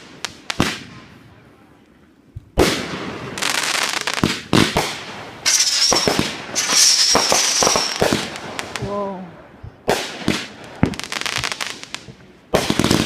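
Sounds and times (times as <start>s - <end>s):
fireworks crackling: 0.0s - 1.2s, 2.5s - 13.0s
fireworks bangs: 2.5s - 9.2s, 9.8s - 13.0s
high firework whistle: 5.5s - 8.2s.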